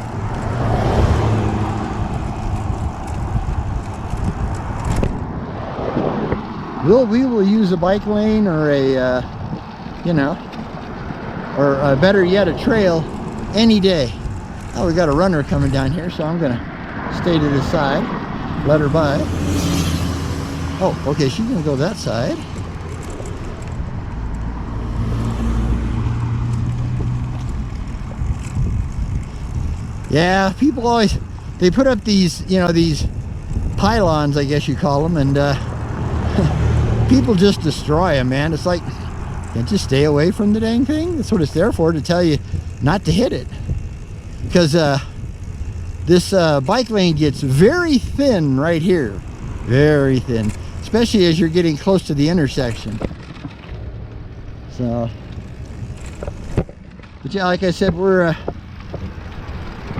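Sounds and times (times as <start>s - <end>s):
car traffic passing: 0.0s - 59.9s
wind rumble on microphone: 0.0s - 59.9s.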